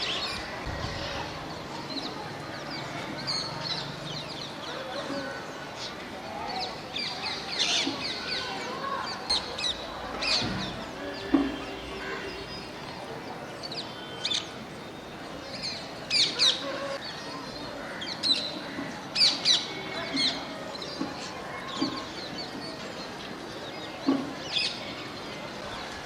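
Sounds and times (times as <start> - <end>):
distant parrots calling: 13.7 - 17.0.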